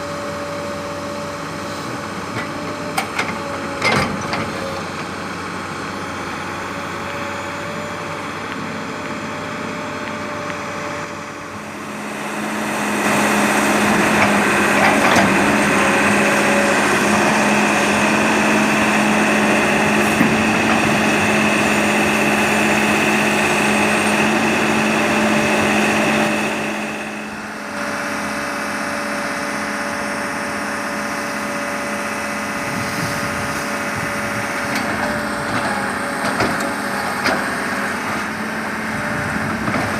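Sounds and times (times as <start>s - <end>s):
excavator diesel engine running: 0.0s - 39.9s
steady high whine: 4.9s - 34.3s.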